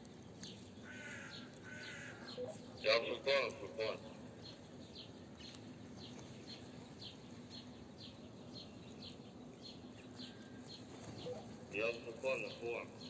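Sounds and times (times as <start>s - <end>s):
small bird chirping: 4.4s - 13.0s.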